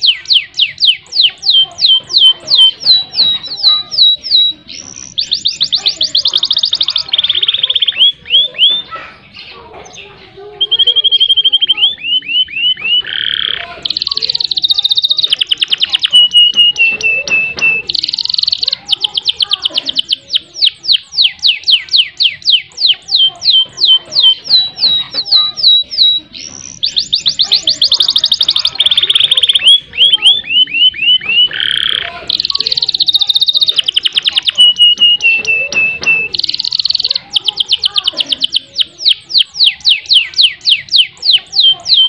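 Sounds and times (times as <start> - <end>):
canary singing: 0.0 - 42.0.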